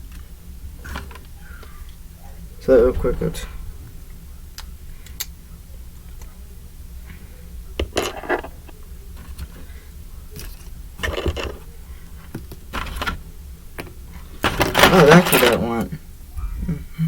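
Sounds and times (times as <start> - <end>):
plastic parts clattering: 0.8 - 1.3, 7.8 - 9.6, 10.4 - 13.2, 13.8 - 15.8.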